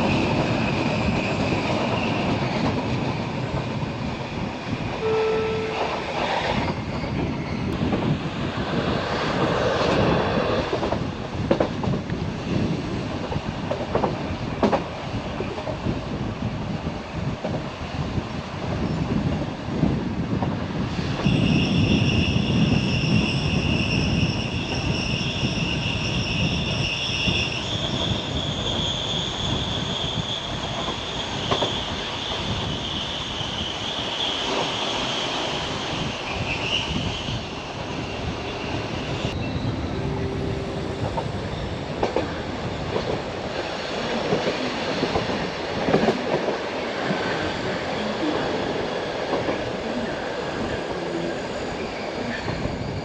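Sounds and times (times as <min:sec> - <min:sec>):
train wheels squealing on rails: 0:00.0 - 0:08.0, 0:20.8 - 0:46.2, 0:46.9 - 0:53.0
train running gear rumble: 0:00.0 - 0:53.0.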